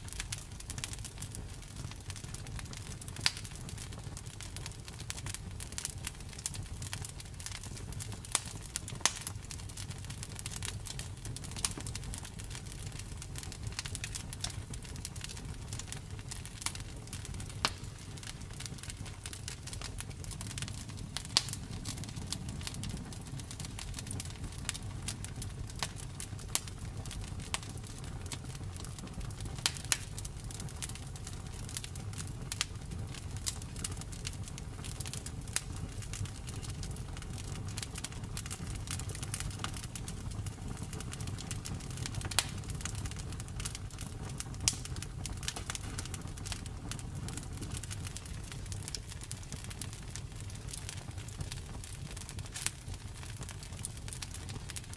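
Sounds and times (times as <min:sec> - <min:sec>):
sharp snaps of fire: 0:00.0 - 0:54.9
wood fire crackling: 0:00.0 - 0:54.9.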